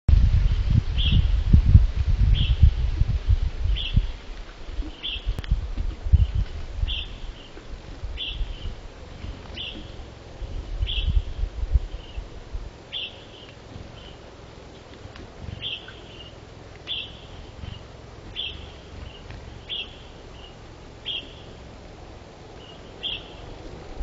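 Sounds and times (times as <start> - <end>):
wind on microphone: 0.1 - 20.3, 22.4 - 24.0
bird chirping: 3.7 - 4.2, 4.8 - 5.5, 6.1 - 12.3, 12.9 - 21.8, 22.5 - 24.0.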